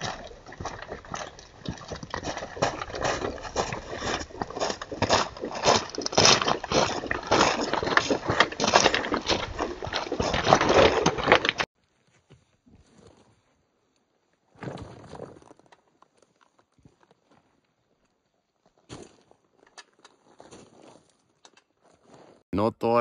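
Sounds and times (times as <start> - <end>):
footsteps crunching on dry ground: 0.0 - 11.7.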